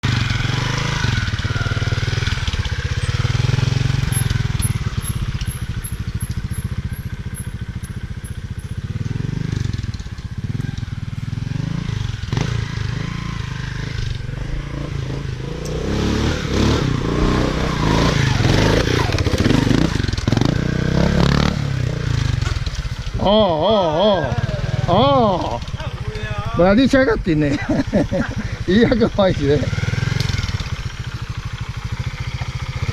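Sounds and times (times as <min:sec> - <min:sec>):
motorcycle engine at low revs: 0:00.0 - 0:32.9.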